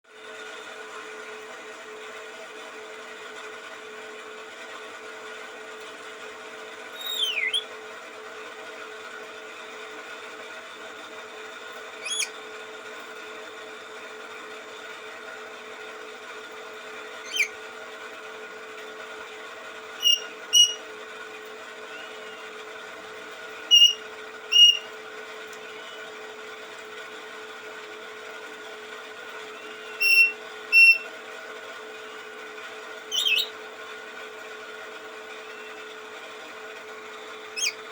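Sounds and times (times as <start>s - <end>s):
steady background hum: 0.2s - 37.9s
songbird chirping: 7.0s - 7.7s, 12.0s - 12.3s, 20.0s - 20.8s, 23.7s - 24.0s, 24.6s - 24.8s, 33.1s - 33.5s.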